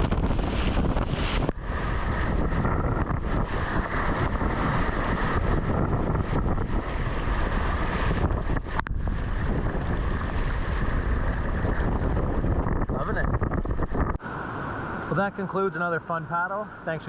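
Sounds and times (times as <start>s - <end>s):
wind buffeting microphone: 0.0s - 15.1s
rushing river water: 6.7s - 12.6s.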